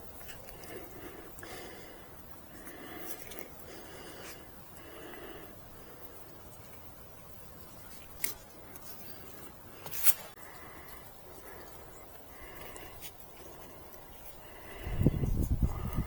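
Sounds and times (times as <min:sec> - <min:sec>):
rope pulled taut: 0:09.8 - 0:10.4.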